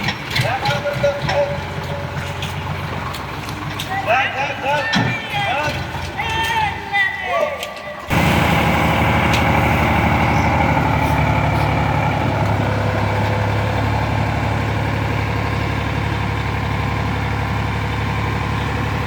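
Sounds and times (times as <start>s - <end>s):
tractor diesel engine running: 0.0s - 6.8s, 8.1s - 19.0s.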